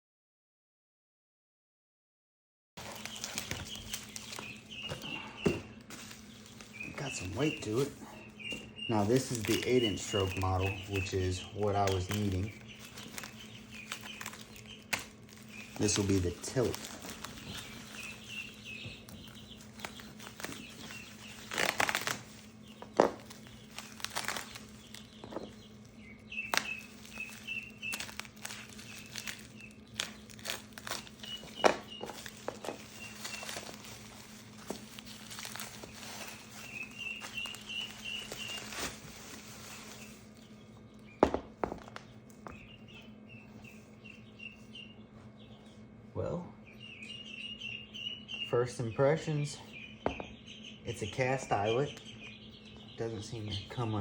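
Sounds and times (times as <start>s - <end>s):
packaging crinkling: 2.8s - 42.8s
chicks and ducklings peeping: 2.8s - 54.0s
steady low hum: 2.8s - 54.0s.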